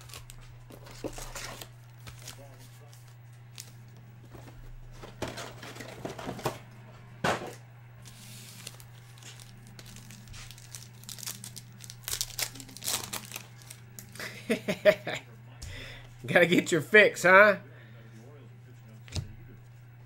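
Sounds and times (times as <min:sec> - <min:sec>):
foil wrappers tearing and crinkling: 0:00.0 - 0:03.8, 0:08.0 - 0:14.3.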